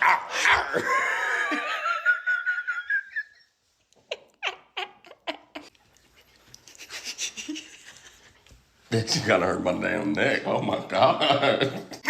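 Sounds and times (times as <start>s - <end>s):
person squealing: 0.0s - 1.0s.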